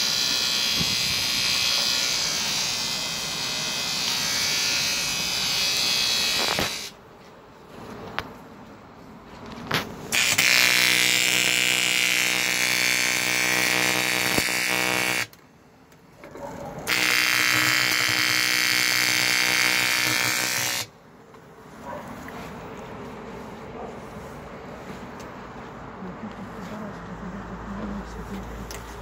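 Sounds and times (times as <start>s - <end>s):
welding arc buzzing: 0.0s - 7.0s, 10.1s - 15.4s, 16.9s - 20.9s.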